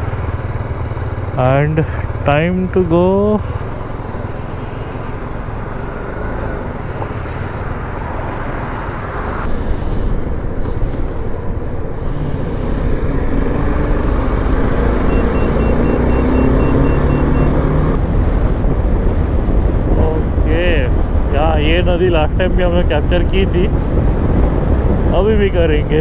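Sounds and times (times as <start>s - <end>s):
motorcycle engine accelerating: 11.9s - 20.9s.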